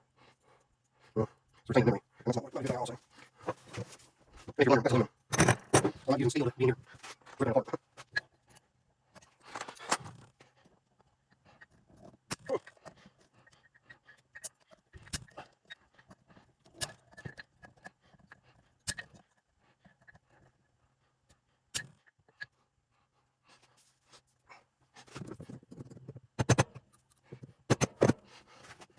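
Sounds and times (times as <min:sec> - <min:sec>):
metal tools and parts clinking: 0:05.3 - 0:06.0.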